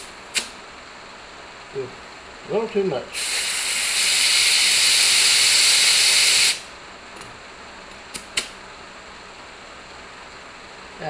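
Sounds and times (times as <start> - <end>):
air hissing from tire valve: 0.0 - 0.6, 3.1 - 6.7.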